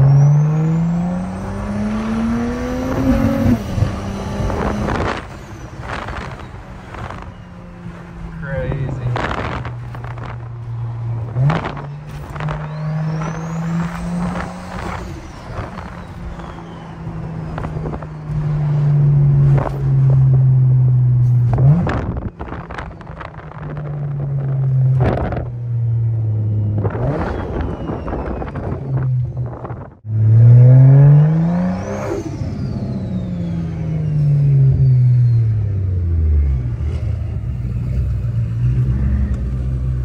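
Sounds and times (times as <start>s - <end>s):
car engine running: 2.3s - 30.3s.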